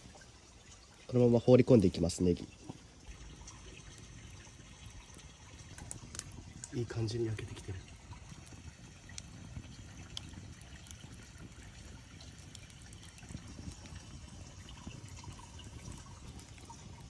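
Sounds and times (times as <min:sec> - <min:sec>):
campfire rumble: 0:00.0 - 0:17.0
fire crackles: 0:00.0 - 0:17.0.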